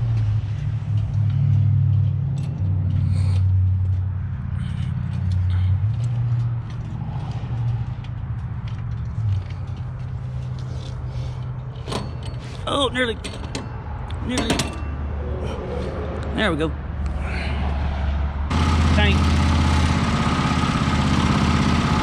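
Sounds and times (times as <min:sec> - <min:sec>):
go-kart engine revving: 0:18.5 - 0:22.0.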